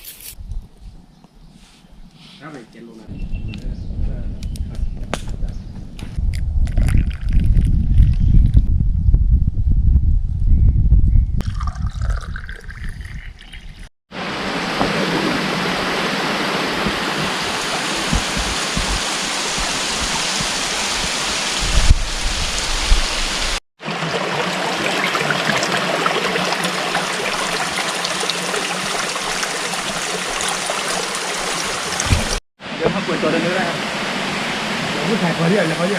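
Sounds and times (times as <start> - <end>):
flowing water: 14.1 - 35.9.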